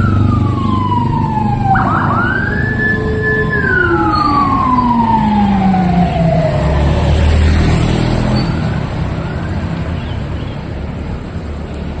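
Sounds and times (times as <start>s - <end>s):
emergency vehicle siren: 0.0s - 9.6s
heavy vehicle engine rumble: 0.0s - 9.8s
street traffic noise: 0.0s - 12.0s.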